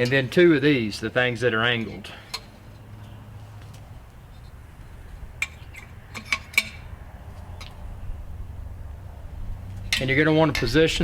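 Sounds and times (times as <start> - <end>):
metal grill parts clinking: 0.0 - 3.2, 5.3 - 6.9, 9.8 - 11.0.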